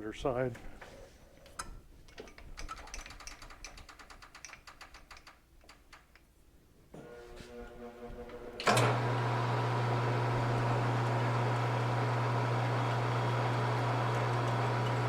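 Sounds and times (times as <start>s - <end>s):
electric motor humming: 7.0s - 15.0s.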